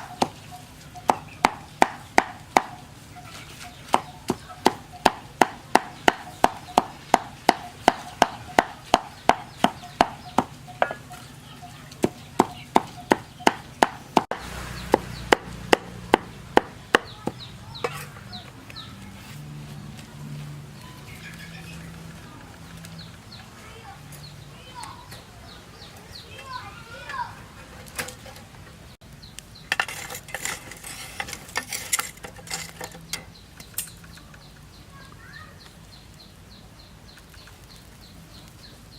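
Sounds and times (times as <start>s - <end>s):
chickens clucking faintly: 0.0s - 29.0s
knife chopping on wooden board: 1.1s - 2.8s, 3.9s - 11.0s, 12.0s - 17.4s.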